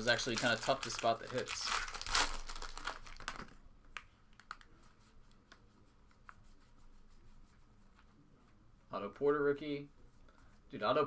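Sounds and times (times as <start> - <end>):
wrapper crinkling: 0.0 - 3.6.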